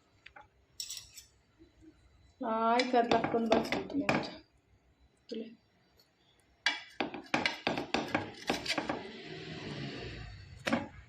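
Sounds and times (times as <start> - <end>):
utensils knocking against cookware: 2.8 - 4.4, 6.7 - 9.0.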